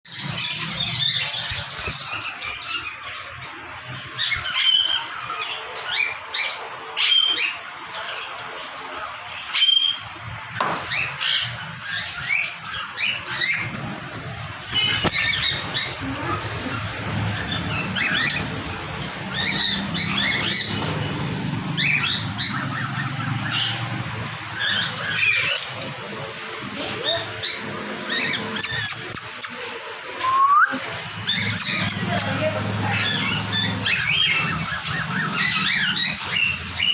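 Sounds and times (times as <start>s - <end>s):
parrot chirping and squawking: 0.1s - 8.3s, 14.7s - 36.9s
parrot whistles: 30.2s - 30.8s.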